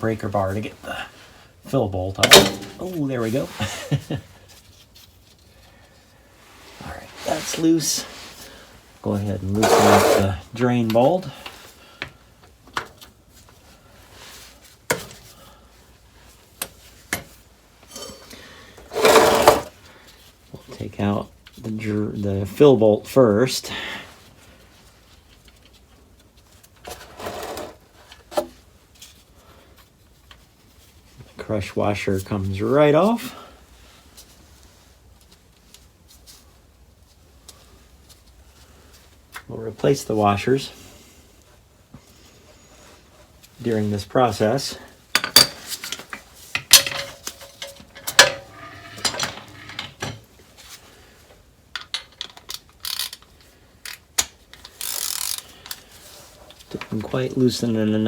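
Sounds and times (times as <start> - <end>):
bolt scraping: 2.2 - 2.9, 9.6 - 10.4, 18.9 - 19.7, 46.6 - 50.2
metal hand tools clanking: 2.2 - 3.0, 9.6 - 10.3, 18.9 - 19.7, 46.6 - 50.2.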